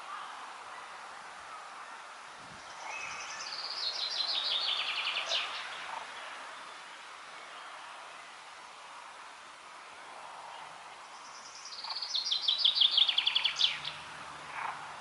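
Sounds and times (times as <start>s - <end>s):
outdoor background hiss: 0.0s - 15.0s
songbird trilling: 11.3s - 14.0s.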